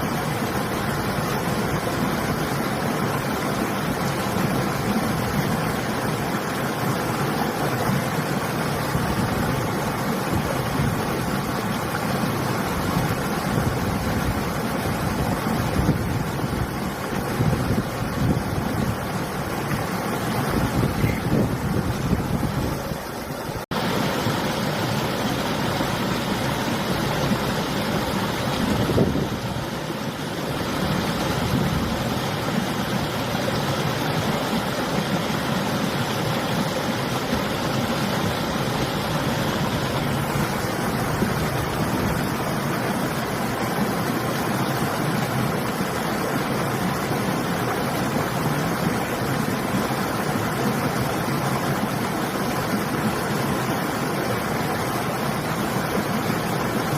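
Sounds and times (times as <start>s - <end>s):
river rushing: 0.0s - 56.9s
wind buffeting microphone: 20.4s - 23.1s, 28.5s - 29.8s.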